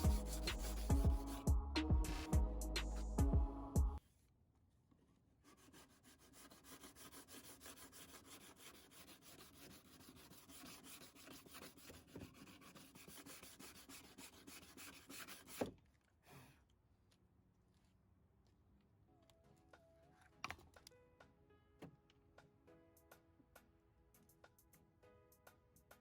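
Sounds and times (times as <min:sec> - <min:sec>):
sandpaper scraping metal: 0:00.0 - 0:01.5, 0:05.5 - 0:15.7.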